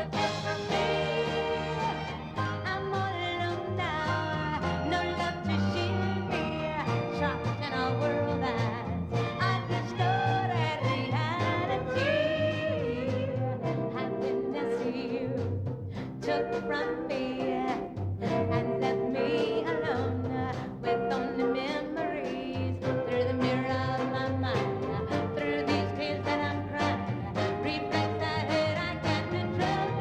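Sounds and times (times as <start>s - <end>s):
brass section: 0.0s - 14.6s, 22.8s - 30.0s
orchestra playing swing music: 0.0s - 30.0s.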